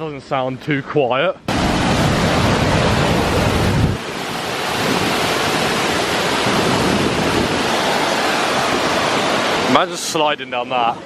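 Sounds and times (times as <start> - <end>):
waterfall rushing: 1.5 - 11.0.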